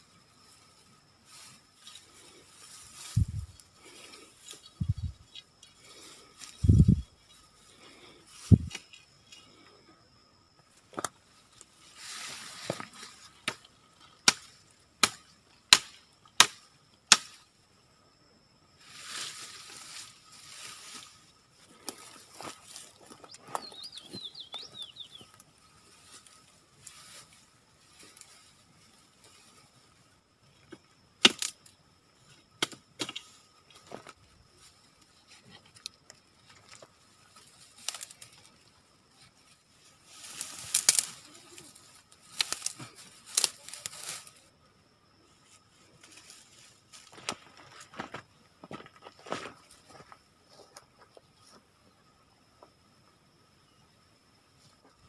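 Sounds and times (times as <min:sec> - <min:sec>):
bird chirp: 0:04.6 - 0:05.5, 0:23.2 - 0:25.4
rustling: 0:33.8 - 0:44.5.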